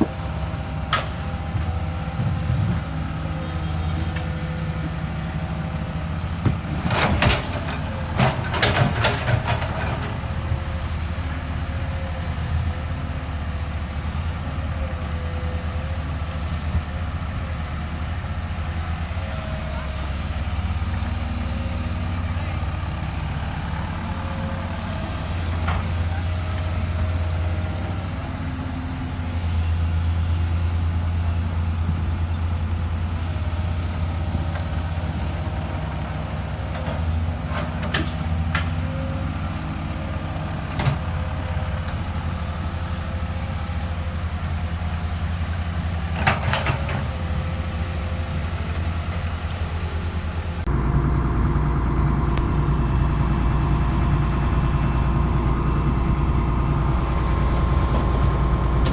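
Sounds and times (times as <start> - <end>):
diesel excavator engine running: 0.0 - 58.9.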